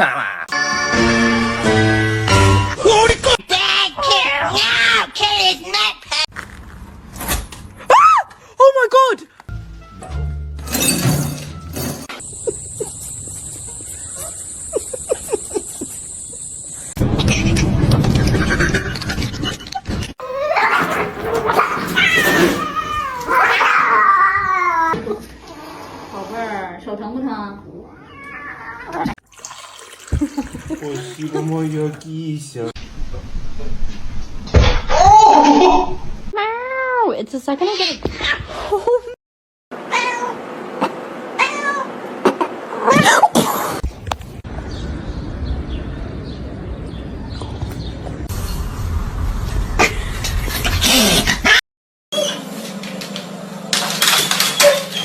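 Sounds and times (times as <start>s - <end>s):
cat yowling: 20.2s - 25.0s, 41.4s - 41.9s.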